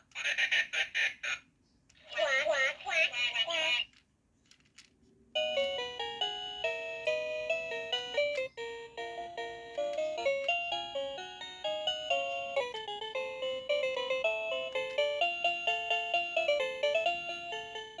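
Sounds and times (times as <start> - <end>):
toy organ beeping melody: 5.4 - 18.0.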